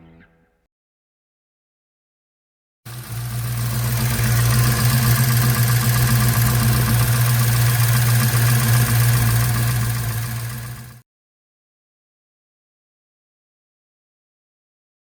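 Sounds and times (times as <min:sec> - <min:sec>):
car engine idling: 0:02.9 - 0:11.0
valve train ticking: 0:02.9 - 0:11.0.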